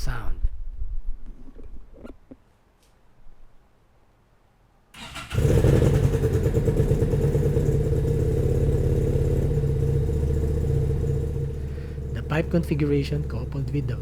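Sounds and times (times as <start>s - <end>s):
motorcycle engine starting and running: 5.0s - 14.0s.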